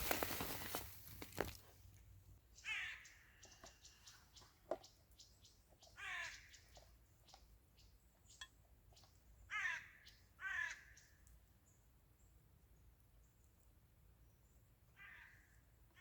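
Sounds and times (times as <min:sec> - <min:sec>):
bird harsh calls: 0:02.6 - 0:04.5, 0:05.8 - 0:06.9, 0:09.5 - 0:11.1.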